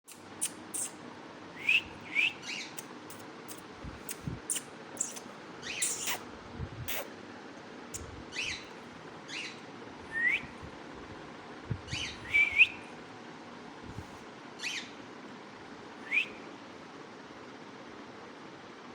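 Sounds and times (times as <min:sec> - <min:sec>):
parrot chirps and whistles: 0:00.4 - 0:01.0, 0:01.6 - 0:06.2, 0:11.9 - 0:12.8.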